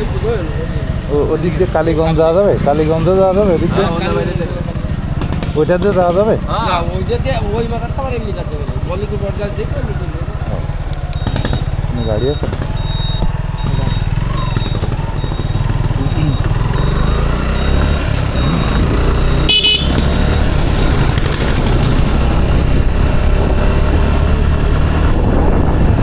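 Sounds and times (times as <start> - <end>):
motorcycle engine rumble: 0.0 - 26.0
faint high beep: 11.0 - 19.9
vehicle horn toot: 19.3 - 20.2.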